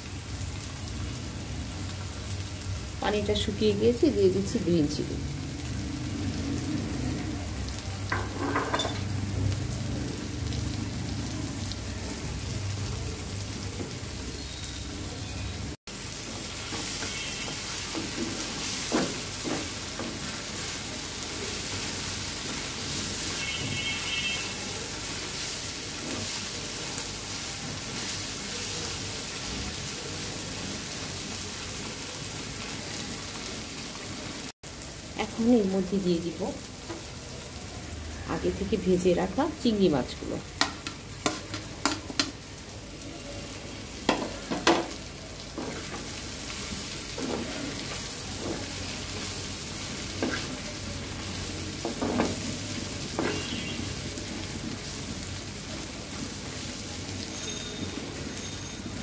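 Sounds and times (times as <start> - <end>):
vegetables sizzling in a wok: 0.0 - 59.0
spatula knocking on pan: 44.1 - 45.0
metal spatula scraping a pan: 47.1 - 49.3, 50.1 - 50.7.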